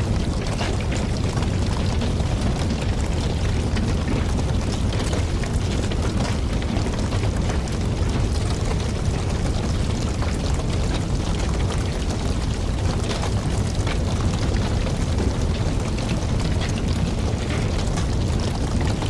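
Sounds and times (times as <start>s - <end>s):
campfire burning with crackles: 0.0s - 19.0s.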